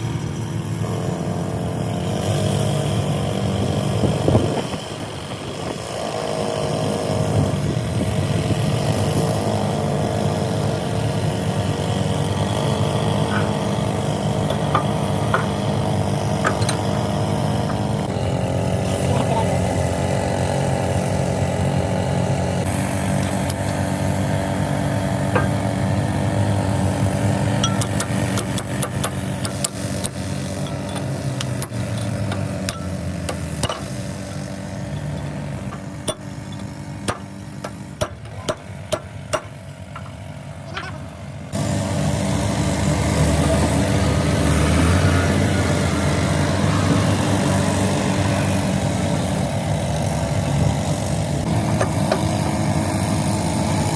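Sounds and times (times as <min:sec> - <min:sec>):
engine droning: 0:00.0 - 0:53.9
sharp knocks: 0:14.4 - 0:15.7, 0:16.4 - 0:17.8, 0:37.1 - 0:40.9.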